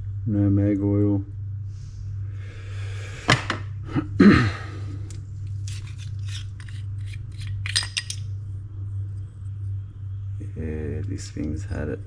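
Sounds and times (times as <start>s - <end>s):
metal parts scraping: 5.6s - 8.2s
metal parts clicking and knocking: 5.7s - 8.2s.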